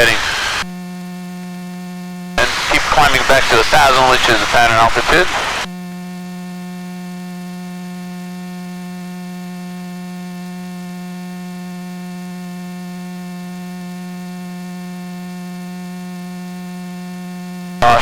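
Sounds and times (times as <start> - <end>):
electrical hum: 0.0 - 0.7, 2.4 - 5.7.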